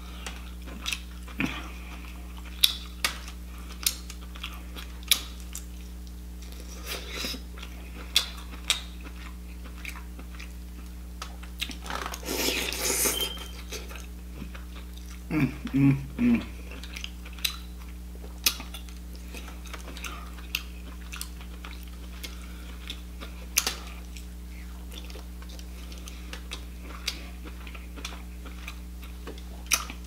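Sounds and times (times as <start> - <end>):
wet chewing: 16.6 - 30.0.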